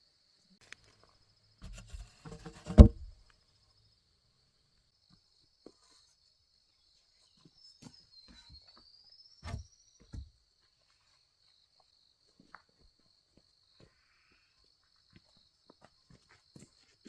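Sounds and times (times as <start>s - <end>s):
faint knocks: 1.7s - 3.1s
loud thuds: 1.7s - 3.2s.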